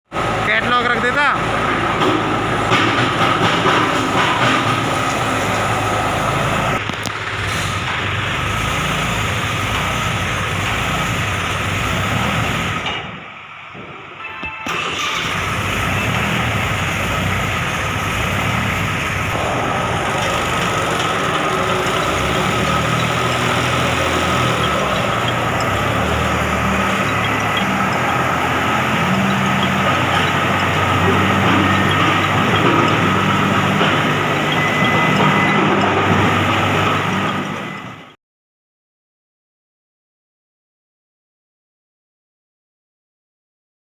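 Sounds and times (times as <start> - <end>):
stone crusher running: 0.2 - 12.9, 14.7 - 38.1
constant machine whine: 7.9 - 38.1.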